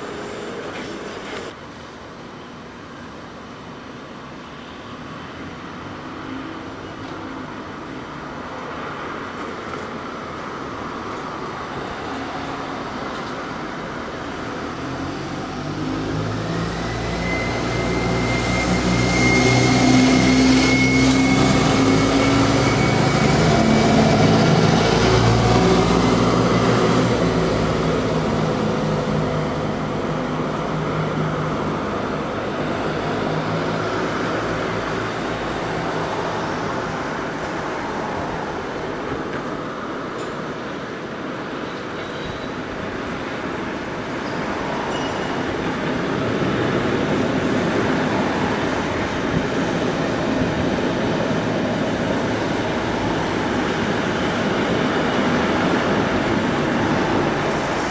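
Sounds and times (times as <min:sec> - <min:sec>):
train passing: 0:00.0 - 0:57.9
steady high whine: 0:16.2 - 0:35.6.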